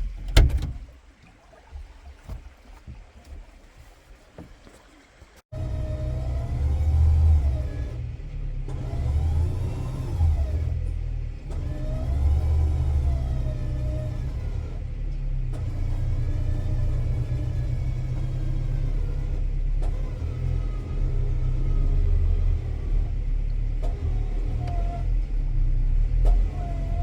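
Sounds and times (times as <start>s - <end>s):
tractor engine revving: 5.5s - 27.0s.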